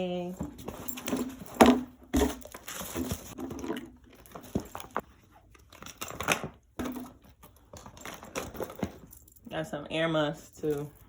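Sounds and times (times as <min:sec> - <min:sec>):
bag rustling and crinkling: 0:02.2 - 0:06.0.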